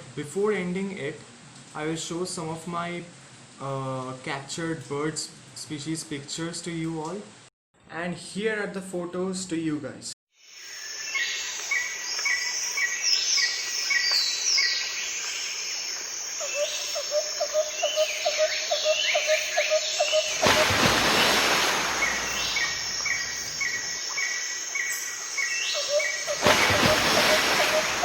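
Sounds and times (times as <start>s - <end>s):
lower pulsing bird notes: 16.4s - 28.0s
high sweeping whistles: 19.2s - 24.2s, 25.4s - 28.0s
rush of hiss: 20.3s - 24.0s, 26.3s - 28.0s.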